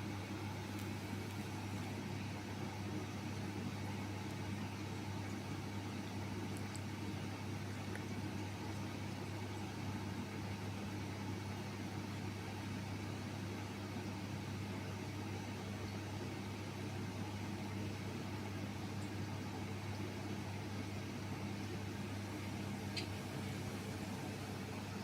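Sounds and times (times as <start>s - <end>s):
dryer blower humming and hissing: 0.0s - 0.2s, 20.8s - 25.0s.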